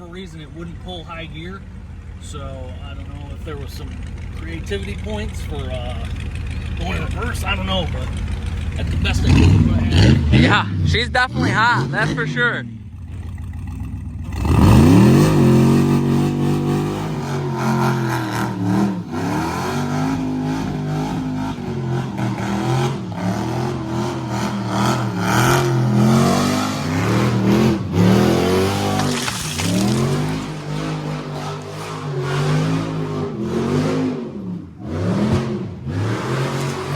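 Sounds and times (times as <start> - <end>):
engine revving hard: 6.7 - 13.2, 14.2 - 36.9.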